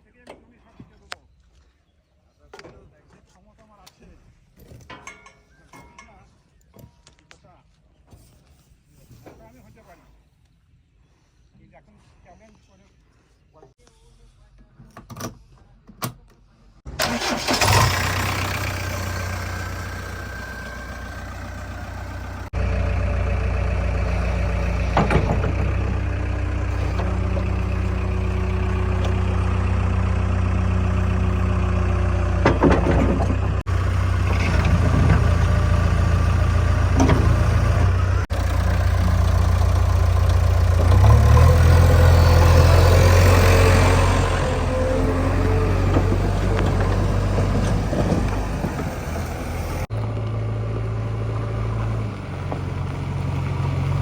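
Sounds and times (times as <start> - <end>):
heavy diesel engine running: 16.9 - 54.0
machinery knocks and clanks: 23.2 - 29.3, 32.2 - 38.2, 45.3 - 49.8.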